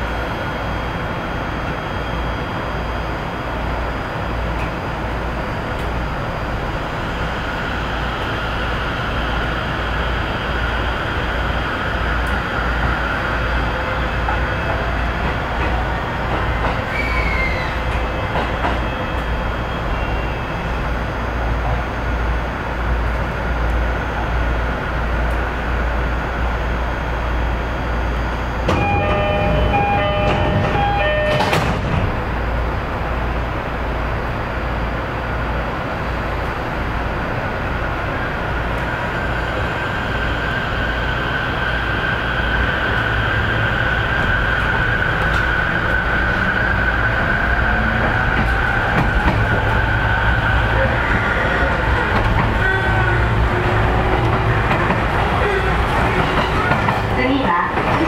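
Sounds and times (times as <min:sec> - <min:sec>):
train wheels rumbling on rail: 0:00.0 - 0:58.0
repeated high ringing tones: 0:28.7 - 0:31.6.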